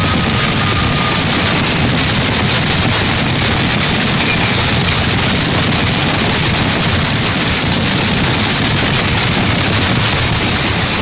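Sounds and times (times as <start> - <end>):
fireworks bangs and crackle: 0.0 - 11.0.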